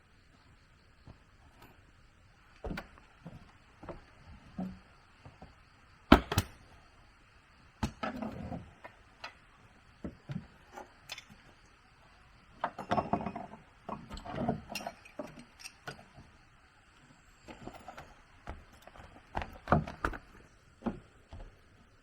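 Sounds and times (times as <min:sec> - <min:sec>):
objects knocking and clattering: 0:12.6 - 0:16.2.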